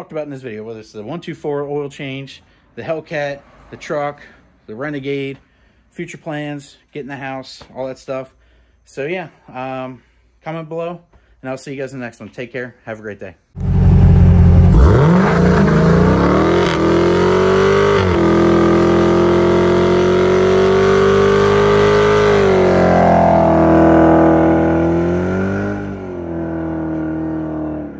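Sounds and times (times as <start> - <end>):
car engine revving: 13.6 - 27.9.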